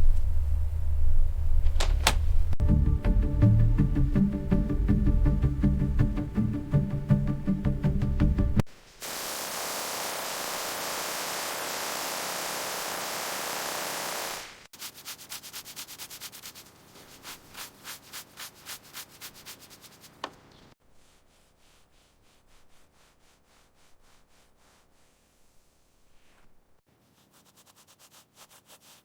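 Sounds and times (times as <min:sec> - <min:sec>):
sanding hiss: 0:08.7 - 0:20.3
rhythmic sanding strokes: 0:09.0 - 0:20.3, 0:27.0 - 0:29.0.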